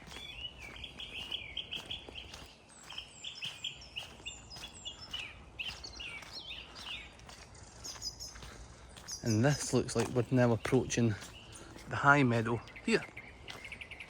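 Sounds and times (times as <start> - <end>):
footsteps on path: 0.0 - 14.0
songbirds singing: 0.0 - 14.0.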